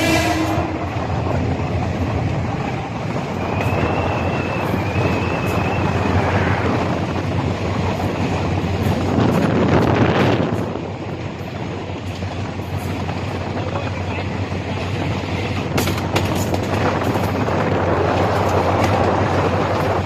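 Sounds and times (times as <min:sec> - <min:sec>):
wind on microphone: 0:00.0 - 0:13.8, 0:14.5 - 0:20.0
train rumbling past: 0:00.0 - 0:20.0
faint high squeal: 0:03.4 - 0:06.6.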